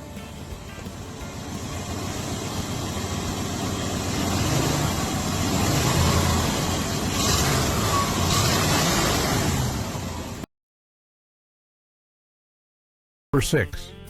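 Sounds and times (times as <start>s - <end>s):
vehicle engine low rumble: 0.0s - 10.5s.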